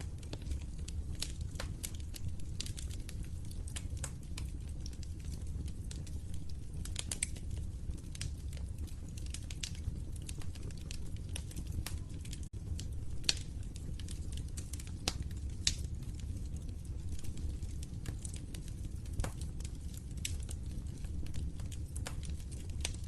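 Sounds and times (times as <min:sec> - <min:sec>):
low rumble of flames: 0:00.0 - 0:23.0
wood fire crackling: 0:00.0 - 0:23.0.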